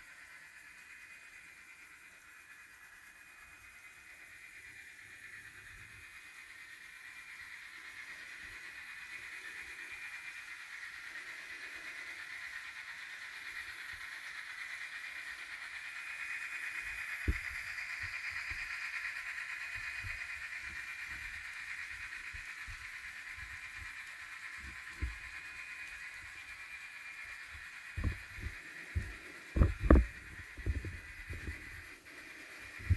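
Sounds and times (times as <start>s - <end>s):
model train whine: 0.0s - 32.9s.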